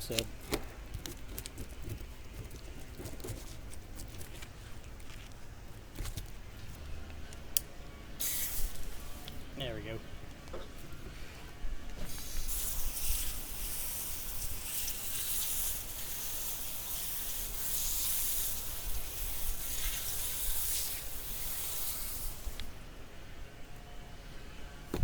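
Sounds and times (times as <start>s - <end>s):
water spraying from a hose: 8.2s - 9.2s, 12.1s - 22.8s.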